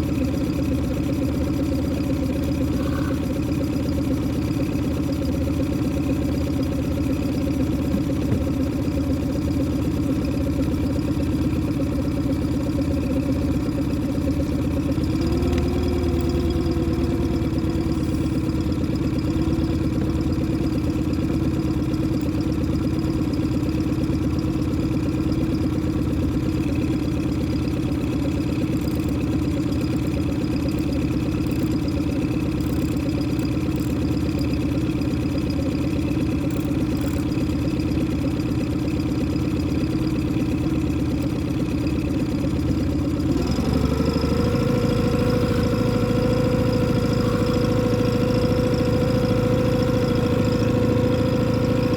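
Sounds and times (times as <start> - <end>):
boat engine running: 0.0 - 51.9.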